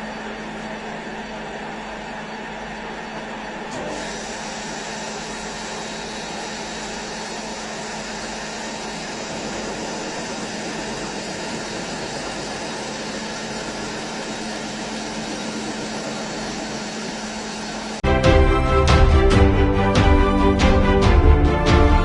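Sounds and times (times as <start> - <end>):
machine tool running: 3.7 - 18.0.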